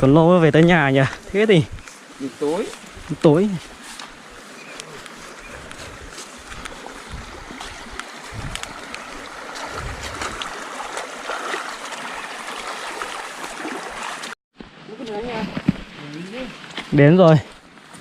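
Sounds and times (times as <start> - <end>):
rain falling on vegetation: 0.6 - 10.9.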